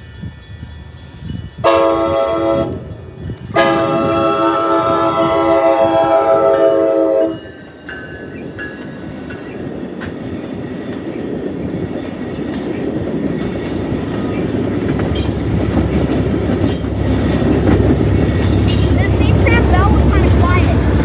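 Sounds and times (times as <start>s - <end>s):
train rumble and wheel noise: 0.0s - 21.0s
train chord horn: 1.6s - 7.4s.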